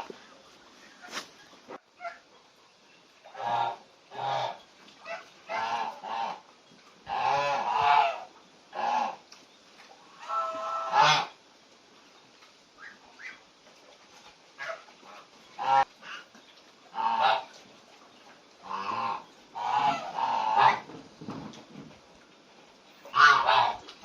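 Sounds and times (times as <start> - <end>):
geese honking: 3.2 - 6.4, 7.1 - 9.2, 10.1 - 11.4, 14.6 - 16.3, 16.9 - 17.6, 18.6 - 20.9, 23.0 - 24.0.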